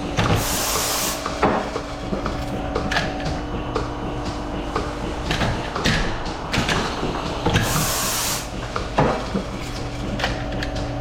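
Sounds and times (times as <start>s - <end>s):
air hiss: 0.2s - 1.4s, 7.5s - 8.6s.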